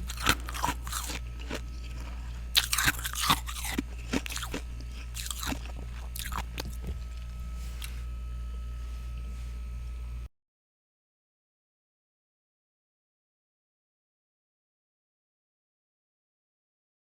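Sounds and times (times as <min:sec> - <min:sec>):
person chewing crunchy frost: 0:00.0 - 0:09.3
steady low hum: 0:00.0 - 0:10.3.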